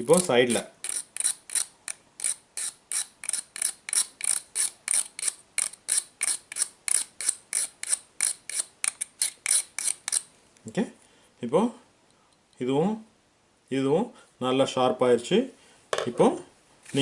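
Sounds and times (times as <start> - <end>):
hand file rasping on steel: 0.0 - 10.3.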